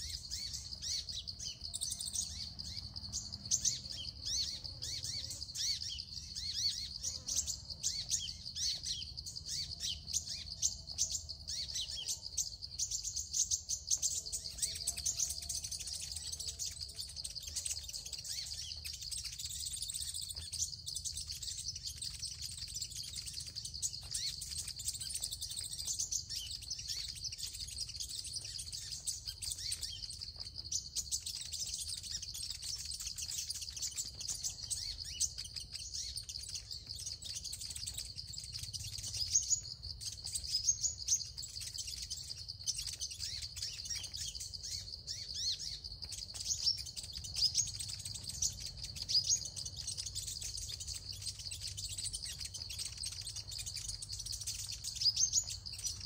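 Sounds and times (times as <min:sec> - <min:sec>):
high-pitched bird chirping: 0:00.0 - 0:56.0.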